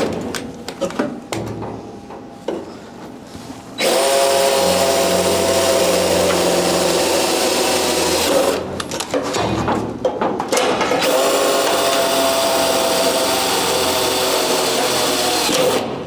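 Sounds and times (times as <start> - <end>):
harsh metalworking noise: 3.8 - 9.8, 10.6 - 16.0.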